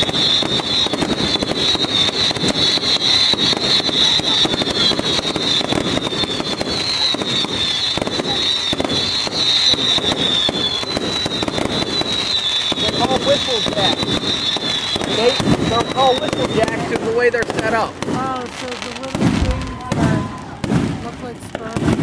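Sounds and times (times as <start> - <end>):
fireworks crackling and popping: 0.0 - 22.0
fireworks whistling: 0.0 - 22.0.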